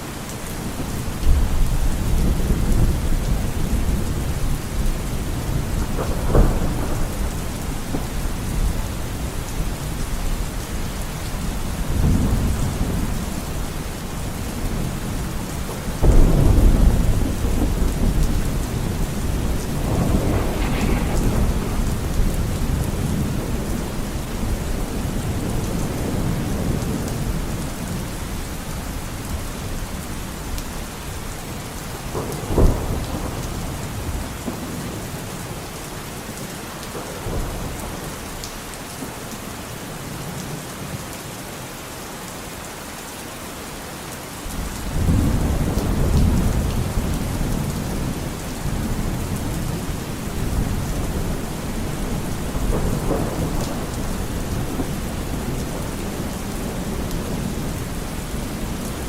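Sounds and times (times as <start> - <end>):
steady rain: 0.0 - 59.0
thunder rolling: 1.2 - 10.0, 15.6 - 27.6, 44.8 - 58.8.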